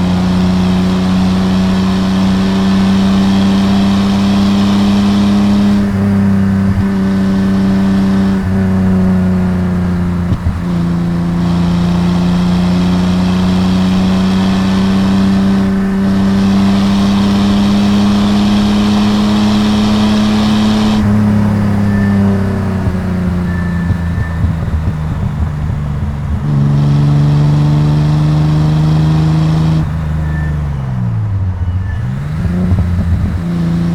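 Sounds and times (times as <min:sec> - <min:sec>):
car engine under load: 0:00.0 - 0:33.9.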